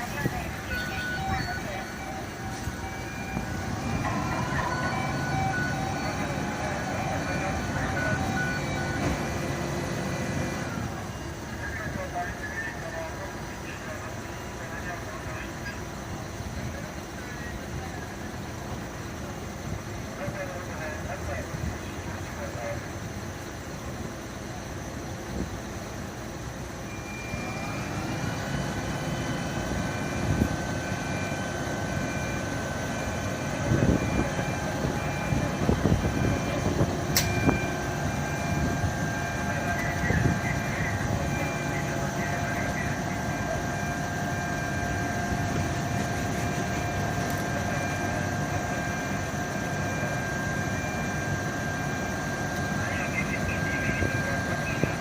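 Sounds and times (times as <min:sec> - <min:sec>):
machine whining: 0:26.7 - 0:55.0.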